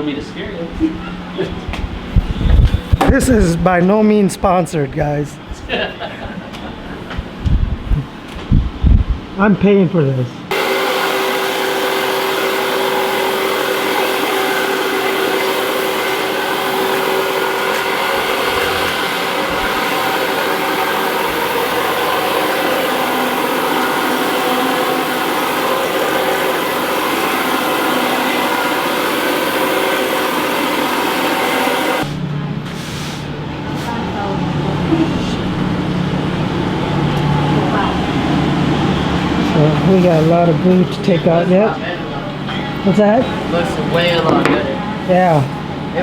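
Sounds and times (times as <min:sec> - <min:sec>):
floor grinder grinding concrete: 0:10.5 - 0:32.2.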